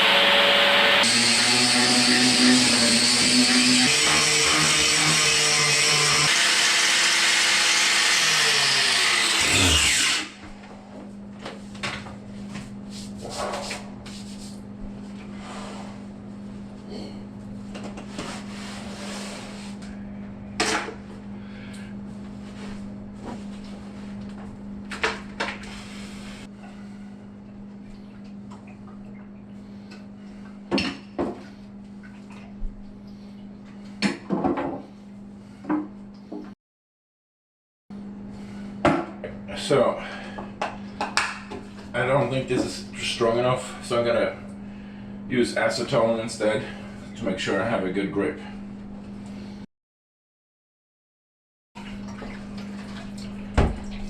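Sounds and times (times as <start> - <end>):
electric power tool running: 0.0 - 10.4
motor winding down: 4.9 - 10.4
faint steady hum: 38.0 - 49.6.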